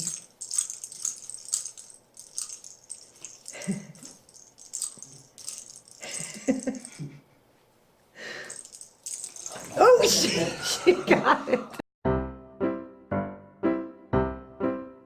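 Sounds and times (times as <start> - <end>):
toy rattling: 0.0 - 7.1, 8.4 - 10.3.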